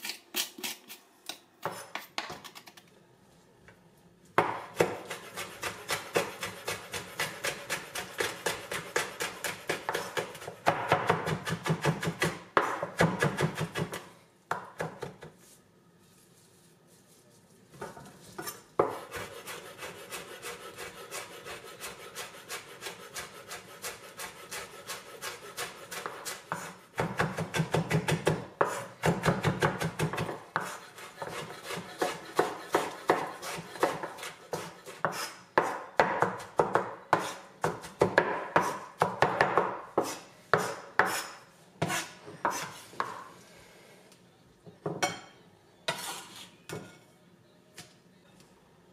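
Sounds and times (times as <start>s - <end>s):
knife chopping on wooden board: 4.4s - 15.2s, 18.8s - 43.2s.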